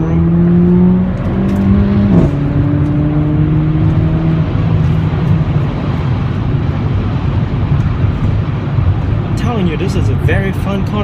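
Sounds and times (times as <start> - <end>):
car engine running while driving: 0.0 - 11.0
road noise: 0.0 - 11.0.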